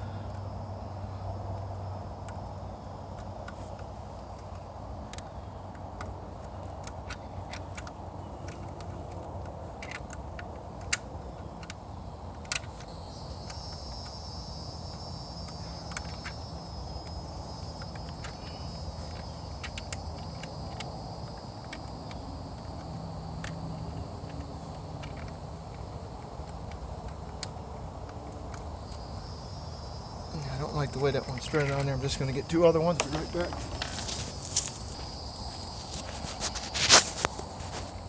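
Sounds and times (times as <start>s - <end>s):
high-pitched insect drone: 12.9s - 27.2s, 28.6s - 38.0s.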